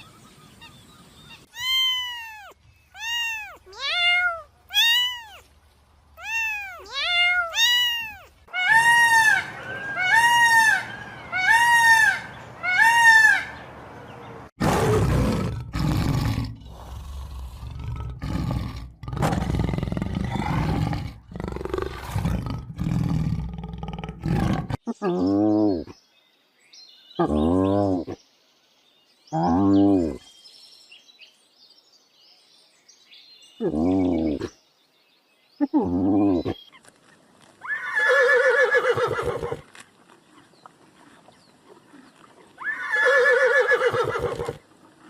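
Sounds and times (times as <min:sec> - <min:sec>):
loud animal calls rising and falling: 0:01.3 - 0:05.4
deep animal roars: 0:14.6 - 0:25.8.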